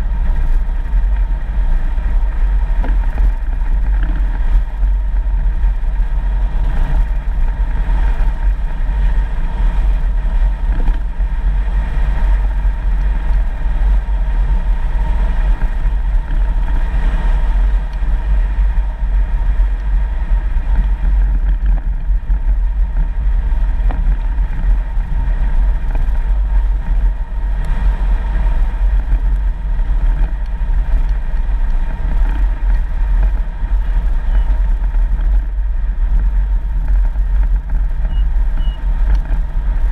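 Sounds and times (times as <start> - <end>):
vehicle rumbling on dirt road: 0.0 - 39.9.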